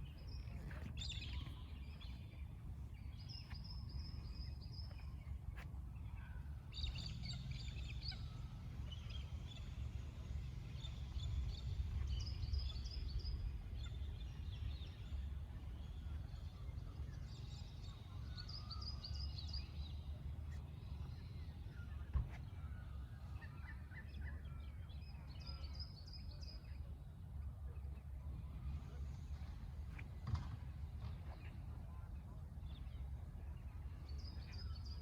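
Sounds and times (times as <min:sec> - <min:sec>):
steady low rumble: 0:00.0 - 0:18.6.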